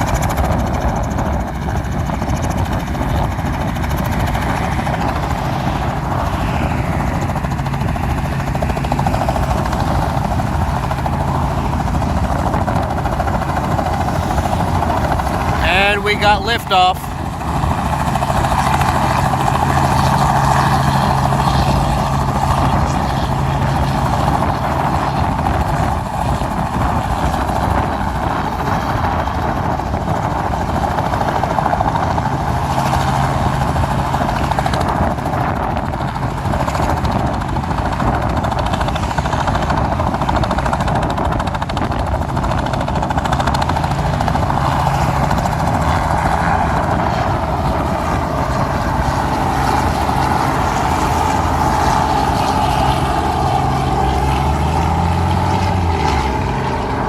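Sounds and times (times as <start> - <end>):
helicopter rotor and engine: 0.0 - 57.0
low hum: 44.1 - 57.0.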